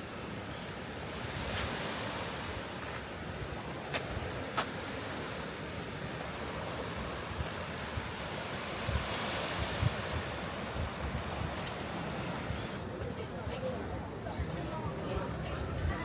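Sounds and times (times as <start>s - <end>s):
sea surf: 0.0s - 16.0s
wind on microphone: 6.4s - 13.0s.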